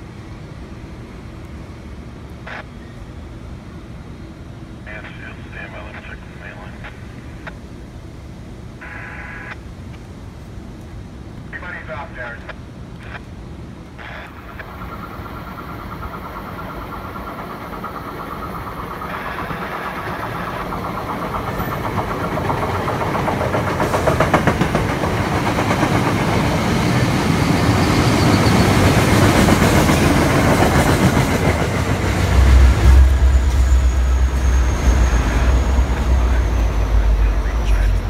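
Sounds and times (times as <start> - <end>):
diesel locomotive engine rumble: 0.0 - 38.0
train wheels rumbling and clicking: 14.2 - 38.0.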